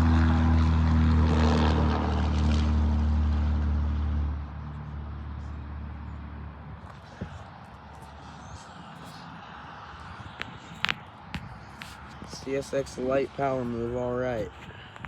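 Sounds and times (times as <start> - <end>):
diesel locomotive engine drone: 0.0 - 15.0.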